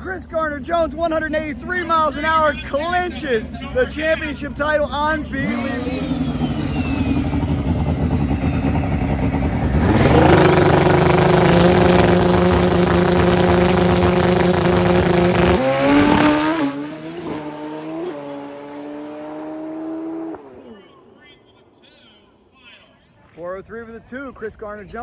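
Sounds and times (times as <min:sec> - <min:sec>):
motorcycle engine at full throttle: 0:05.2 - 0:20.8.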